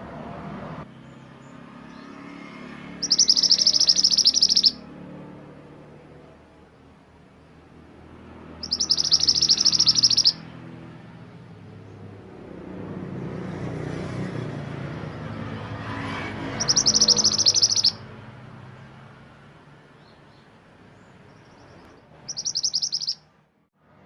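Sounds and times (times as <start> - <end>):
songbird chattering trills: 3.0 - 4.8, 8.6 - 10.4, 16.5 - 18.0, 21.0 - 23.2.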